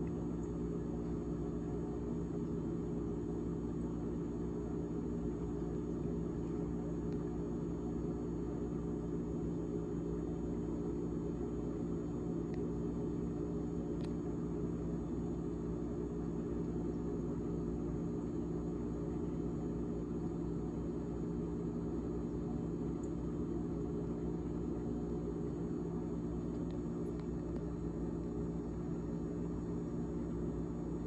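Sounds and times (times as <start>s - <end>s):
refrigerator fan humming: 0.0s - 31.0s.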